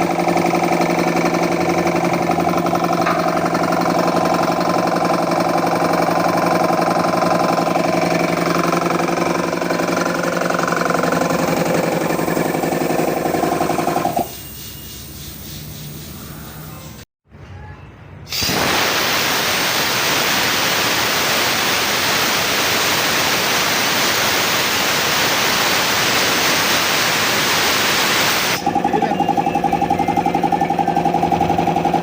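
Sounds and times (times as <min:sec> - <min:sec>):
air compressor pump running: 0:00.0 - 0:17.0, 0:18.3 - 0:32.0
loud steady hiss: 0:18.3 - 0:28.6.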